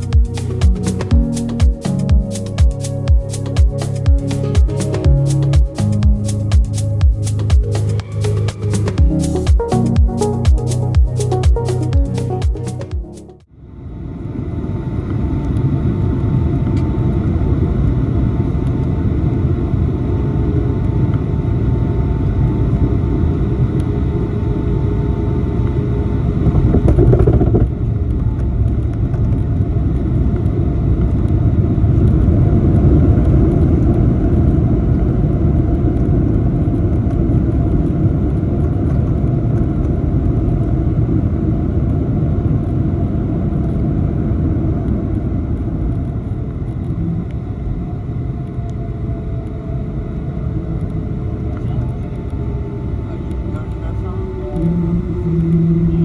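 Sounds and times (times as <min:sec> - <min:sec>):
faint steady whine: 0:13.5 - 0:56.0
jet engine cabin rumble: 0:13.6 - 0:56.0.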